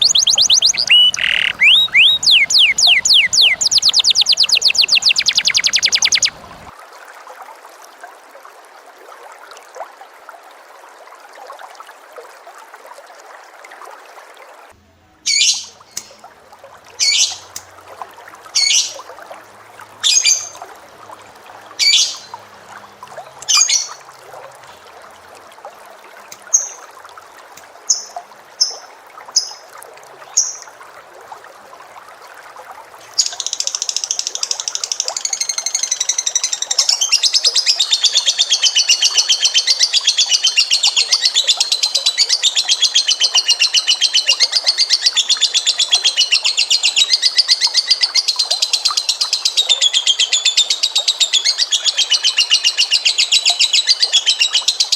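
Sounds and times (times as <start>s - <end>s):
bird fast trill: 0.0s - 6.7s
loud sharp bird chirps: 0.0s - 6.7s
short high bird peeps: 0.0s - 6.7s.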